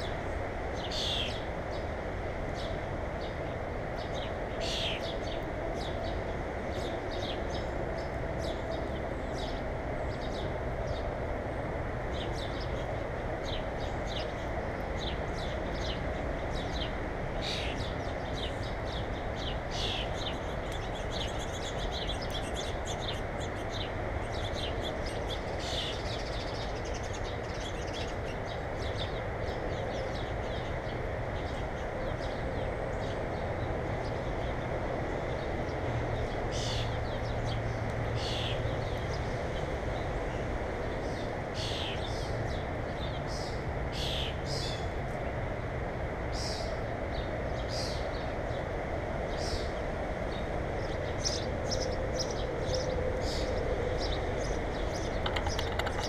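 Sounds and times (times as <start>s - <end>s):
small songbirds chirping: 0.0s - 1.9s, 2.5s - 11.5s, 12.1s - 45.3s, 46.3s - 48.7s, 49.3s - 56.0s.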